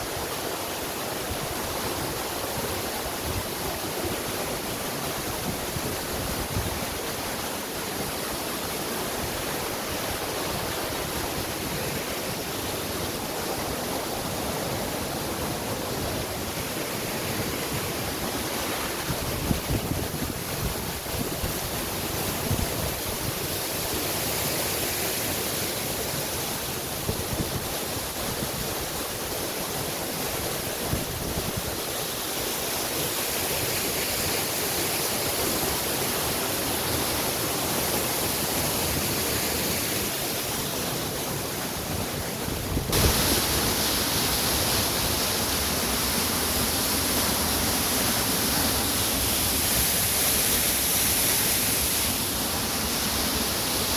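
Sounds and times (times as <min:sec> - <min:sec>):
waterfall rush: 0:00.0 - 0:53.9.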